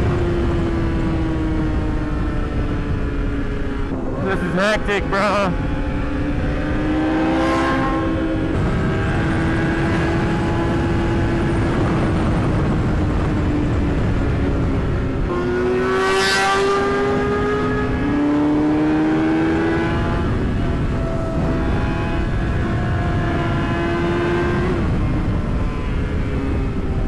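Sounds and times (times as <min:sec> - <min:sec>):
wind rushing: 0:00.0 - 0:15.8
motorcycle engine revving high: 0:00.0 - 0:27.0.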